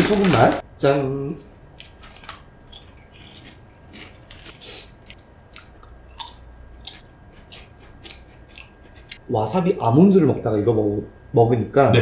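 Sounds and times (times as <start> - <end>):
potato chips crunching: 1.8 - 9.2.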